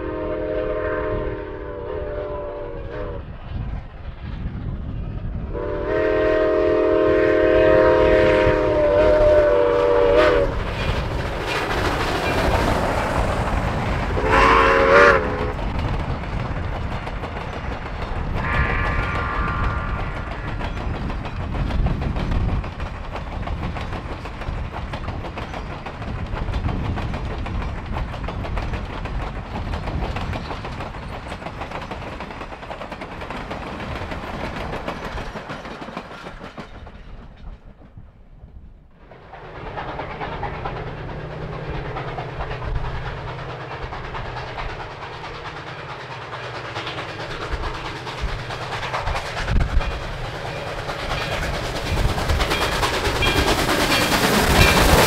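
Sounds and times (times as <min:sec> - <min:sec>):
distant approaching train hum: 0:00.0 - 0:55.0
railroad cars rolling past: 0:00.0 - 0:55.0
wheels clicking over rail joints: 0:10.5 - 0:38.2, 0:39.2 - 0:55.0.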